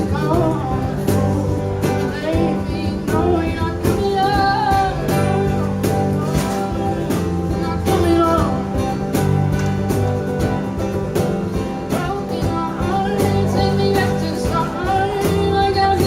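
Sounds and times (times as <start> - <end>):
cajon beat: 0.0 - 16.0
person singing: 0.0 - 16.0
strummed acoustic guitar: 0.0 - 16.0.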